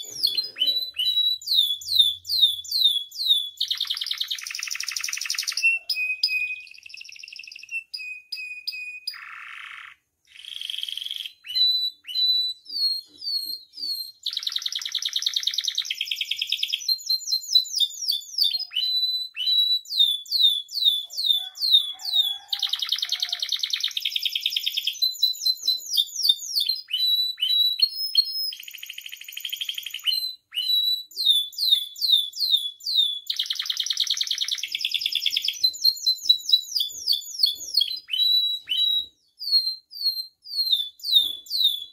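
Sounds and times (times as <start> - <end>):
canary singing: 0.0 - 41.9.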